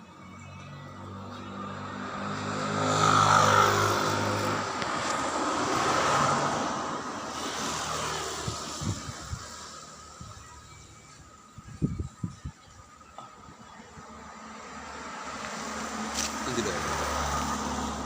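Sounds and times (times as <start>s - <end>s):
propeller aircraft flying overhead: 1.1s - 10.2s.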